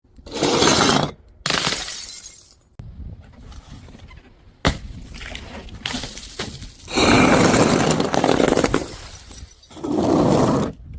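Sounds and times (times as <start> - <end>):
glass bottles smashing: 1.5 - 2.6, 5.8 - 9.9
glass scattering: 1.5 - 2.6, 5.8 - 9.9.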